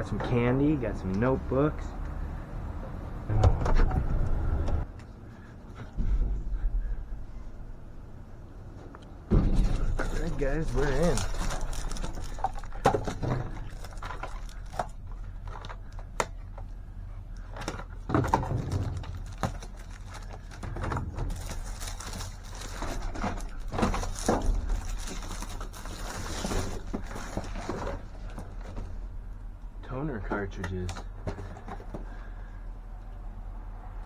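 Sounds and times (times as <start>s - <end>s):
boxes knocking in a dumpster: 9.3s - 14.4s, 18.0s - 19.7s.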